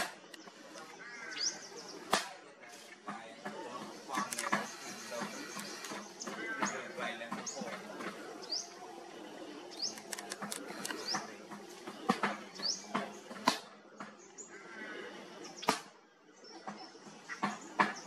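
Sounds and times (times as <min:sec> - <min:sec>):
birds chirping: 0:00.0 - 0:18.0
sharp clicks: 0:04.1 - 0:06.4, 0:09.8 - 0:11.3.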